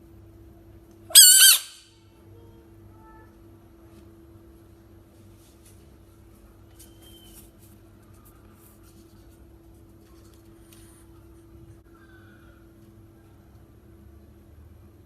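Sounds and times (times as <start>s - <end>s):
faint scratching and ticks: 6.8s - 11.8s.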